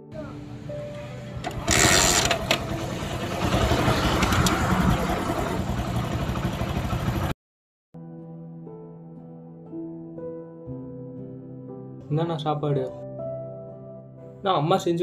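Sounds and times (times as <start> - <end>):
motorcycle engine pulling away: 1.0 - 7.3.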